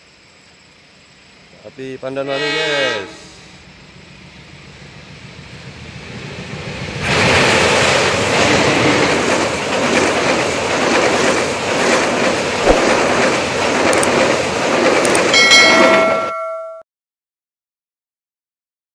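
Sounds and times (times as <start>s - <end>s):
passenger train rushing past: 1.1s - 16.7s
wheels clacking over rail joints: 7.0s - 16.5s
sharp knock: 12.7s - 13.2s.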